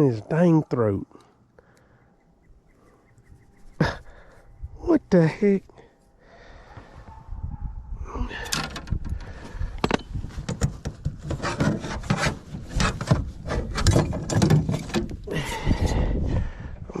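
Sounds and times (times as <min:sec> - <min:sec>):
low wind rumble: 0:02.0 - 0:05.7, 0:06.3 - 0:17.0
handling noise on microphone: 0:08.6 - 0:15.2.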